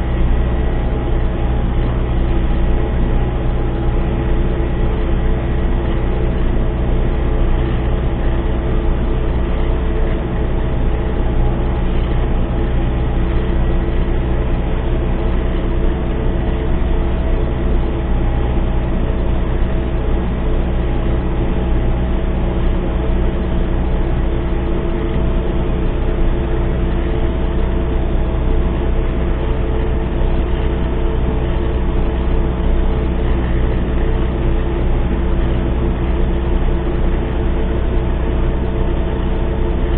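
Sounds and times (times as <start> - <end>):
tractor diesel engine droning: 0.0 - 39.9.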